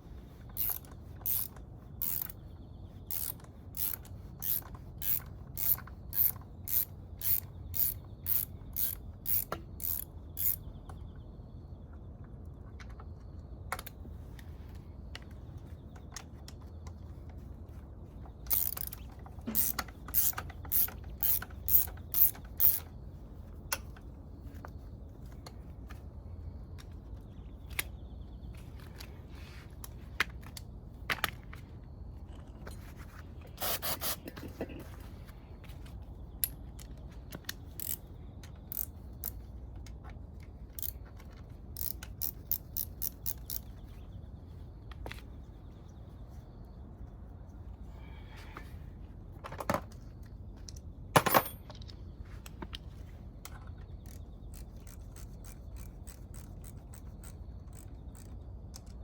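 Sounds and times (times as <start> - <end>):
ratchet wrench clicking: 0.6 - 2.4, 3.1 - 10.7, 18.5 - 22.9, 37.7 - 38.0, 38.7 - 39.4, 40.8 - 41.0, 41.8 - 43.7, 54.0 - 58.9.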